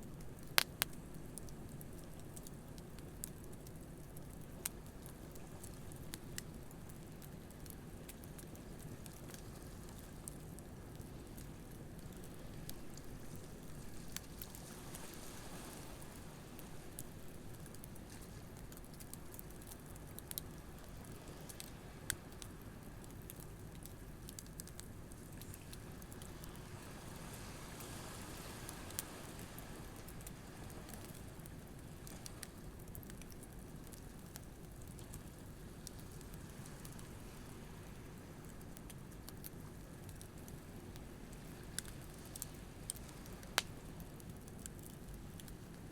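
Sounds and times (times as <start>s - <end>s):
campfire crackling and popping: 0.0s - 45.9s
waves on a beach: 26.3s - 31.2s.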